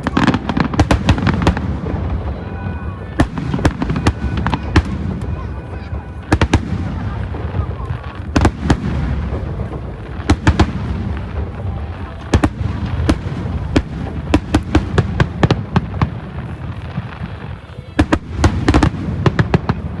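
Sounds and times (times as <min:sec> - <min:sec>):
fireworks bangs: 0:00.0 - 0:20.0.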